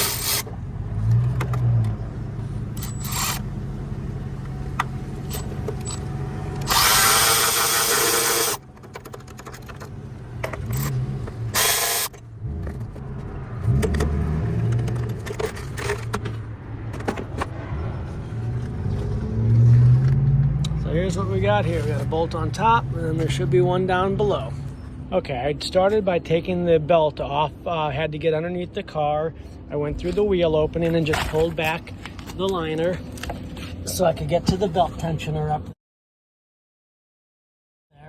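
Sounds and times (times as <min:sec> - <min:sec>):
cordless ratchet spinning bolts: 0:02.8 - 0:03.4, 0:06.6 - 0:08.6, 0:11.6 - 0:12.1.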